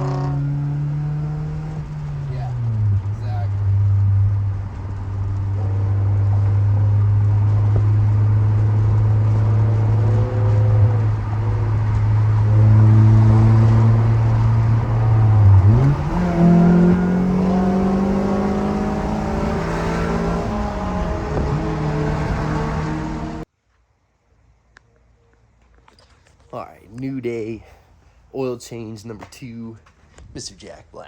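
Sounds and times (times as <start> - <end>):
car exhaust idling and revving: 0.0 - 23.5.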